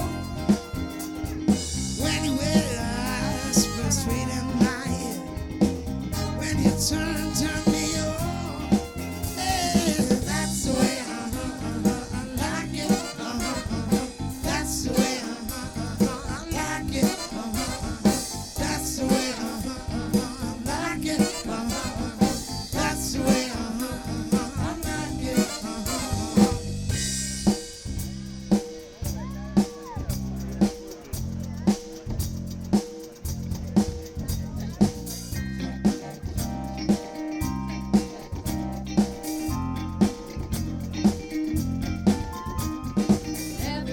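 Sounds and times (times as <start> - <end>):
person singing: 0.0 - 1.2, 2.0 - 26.7, 43.6 - 43.9
drum kit: 0.0 - 43.9
live band playing: 0.0 - 43.9.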